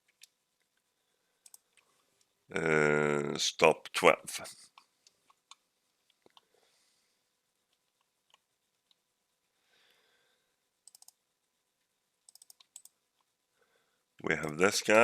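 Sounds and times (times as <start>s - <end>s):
faint computer clicks: 1.4s - 1.9s, 10.8s - 11.2s.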